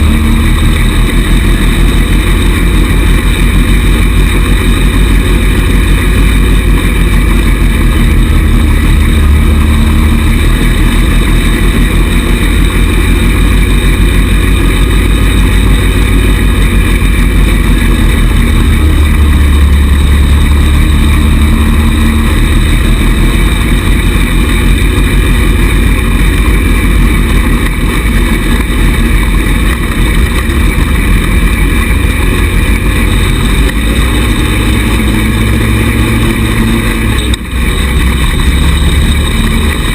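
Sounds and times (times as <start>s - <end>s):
small buggy engine running: 0.0s - 39.9s.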